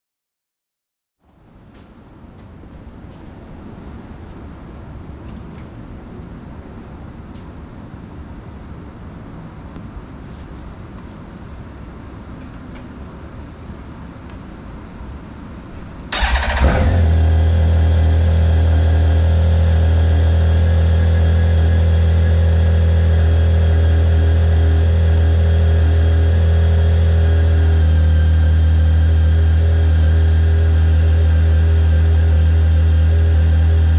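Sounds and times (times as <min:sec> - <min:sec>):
motorcycle engine starting: 0:16.1 - 0:33.9
motorcycle engine idling: 0:16.2 - 0:33.9.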